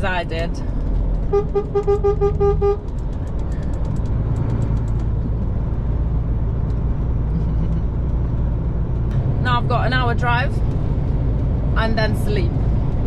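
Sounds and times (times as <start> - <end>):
truck engine running: 0.0 - 13.0
truck horn short beeps: 1.3 - 2.8.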